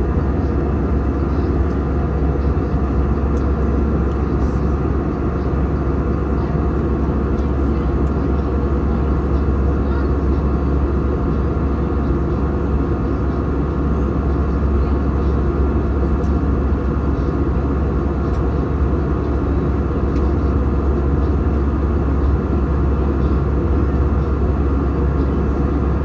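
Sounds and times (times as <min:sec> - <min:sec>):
airplane cabin drone: 0:00.0 - 0:26.0.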